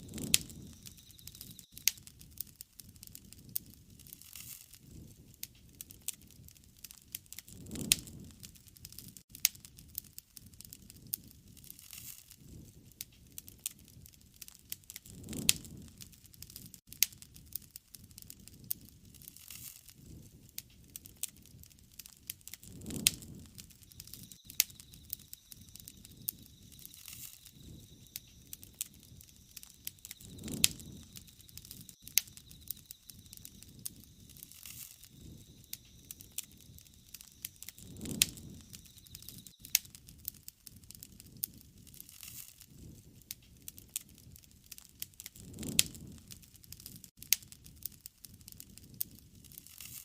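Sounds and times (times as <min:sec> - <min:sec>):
wood fire crackling and popping: 0:00.0 - 0:50.0
low soft rush: 0:22.8 - 0:39.5.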